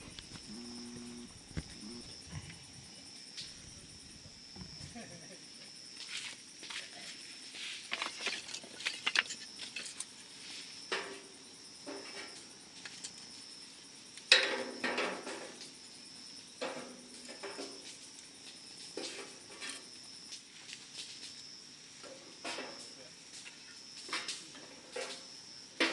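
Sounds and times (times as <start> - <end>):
campfire crackling: 0.0 - 5.4
high insect drone: 0.0 - 25.9.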